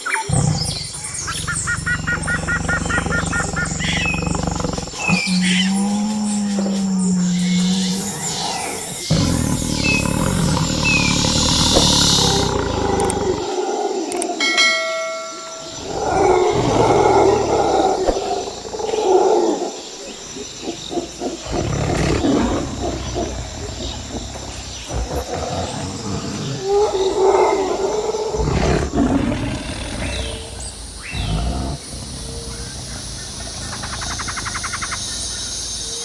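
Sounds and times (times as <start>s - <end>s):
animal calling roughly: 0.0s - 13.4s.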